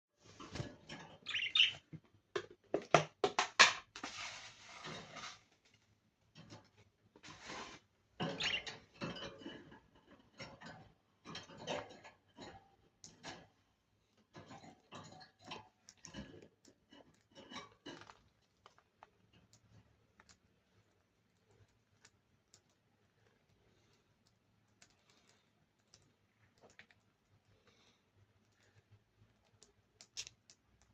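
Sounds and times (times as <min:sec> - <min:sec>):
budgerigars chirping: 0:01.3 - 0:01.8, 0:08.4 - 0:08.7
birds pecking at food: 0:14.3 - 0:30.9.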